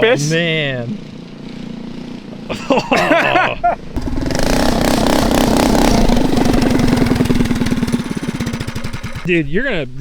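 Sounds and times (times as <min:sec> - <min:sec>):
engine running at high revs: 0:04.0 - 0:09.3.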